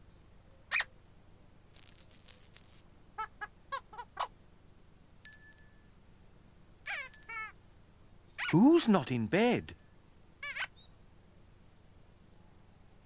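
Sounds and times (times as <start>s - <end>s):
high rattling shake: 1.8s - 2.8s
bell-like ding: 5.3s - 5.9s, 6.9s - 7.4s, 9.4s - 10.0s.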